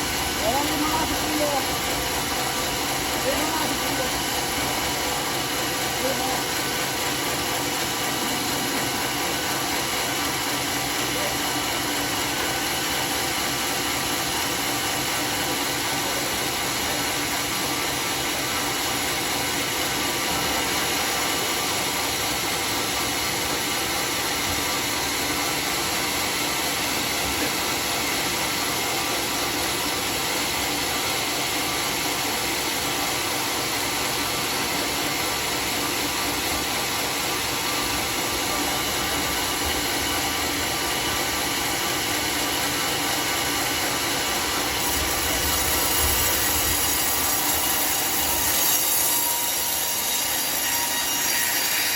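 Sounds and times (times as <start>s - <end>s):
circular saw sawmill running: 0.0s - 51.9s.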